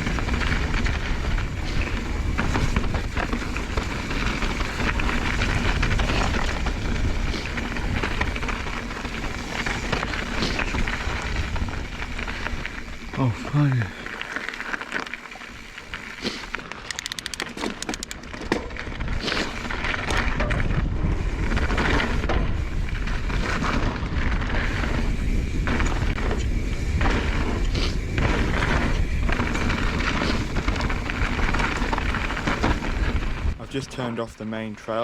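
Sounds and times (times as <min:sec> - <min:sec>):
bike knocks and rattles: 0:00.0 - 0:12.4, 0:16.6 - 0:33.5
wind rumble on microphone: 0:00.0 - 0:13.6, 0:18.3 - 0:33.7
tyres rolling over rough ground: 0:00.0 - 0:35.0
bicycle rear hub ticking: 0:16.8 - 0:18.3.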